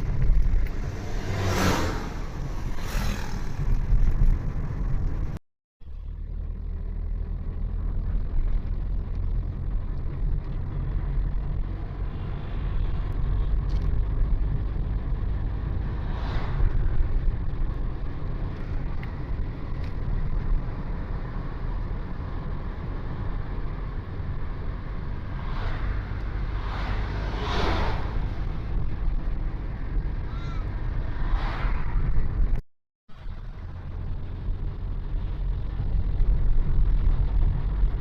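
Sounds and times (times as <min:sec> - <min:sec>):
road and wind noise: 0:00.0 - 0:38.0
vehicles passing: 0:00.0 - 0:38.0.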